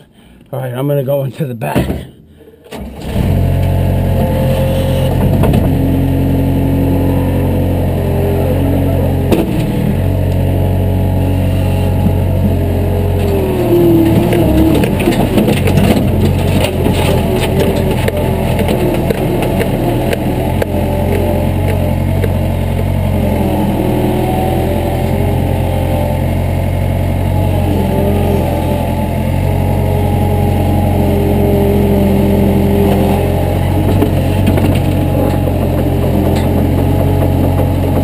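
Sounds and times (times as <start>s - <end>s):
engine running steadily: 1.7s - 38.0s.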